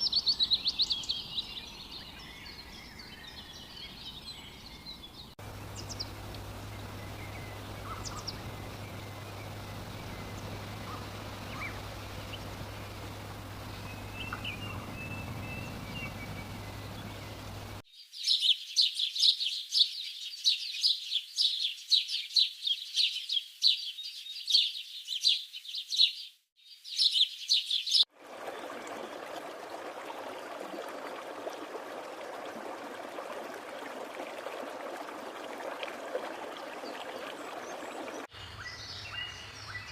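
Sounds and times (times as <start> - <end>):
birds chirping: 0.0 - 18.6, 26.0 - 39.9
low steady hum: 5.4 - 17.8.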